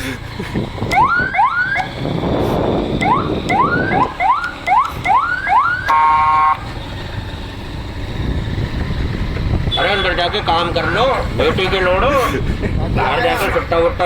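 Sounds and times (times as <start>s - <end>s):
motorbike engine: 0.0s - 14.0s
street noise: 0.0s - 14.0s
electronic horn whooping: 3.0s - 6.6s, 9.7s - 11.2s.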